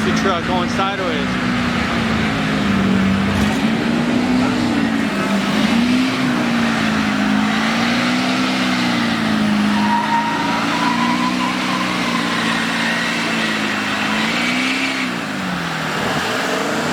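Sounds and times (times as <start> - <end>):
truck engine at high revs: 0.0 - 16.9.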